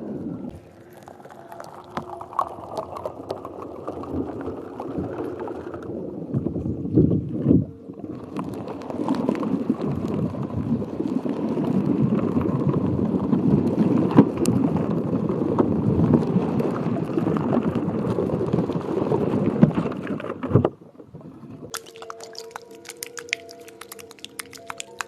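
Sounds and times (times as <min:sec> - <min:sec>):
water swishing and gurgling: 0:00.0 - 0:25.0
soft music with light taps: 0:21.7 - 0:25.0.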